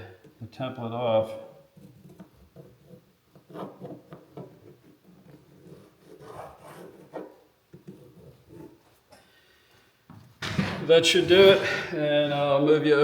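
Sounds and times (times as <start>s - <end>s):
writing tool scratching on wood: 1.8s - 8.9s.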